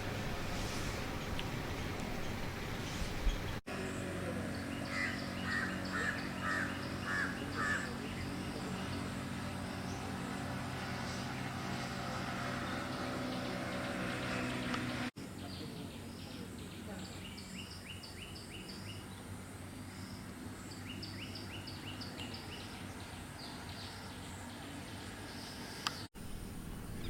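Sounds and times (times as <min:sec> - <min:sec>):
steady low hum: 0:00.0 - 0:14.1, 0:18.3 - 0:27.0
crow cawing: 0:04.9 - 0:07.9.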